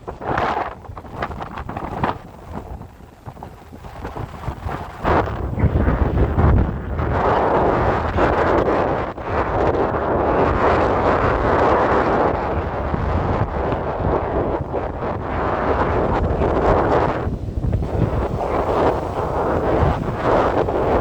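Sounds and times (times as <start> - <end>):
wind buffeting microphone: 0.0 - 21.0
ocean surf rushing: 10.2 - 21.0.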